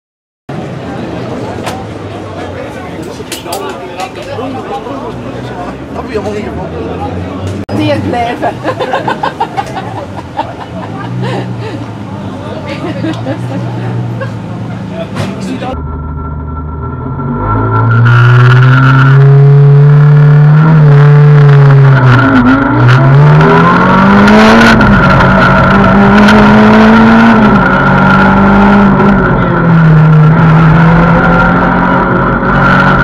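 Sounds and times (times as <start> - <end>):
car engine revving through gears: 15.1 - 33.0
steady high whine: 15.3 - 20.9.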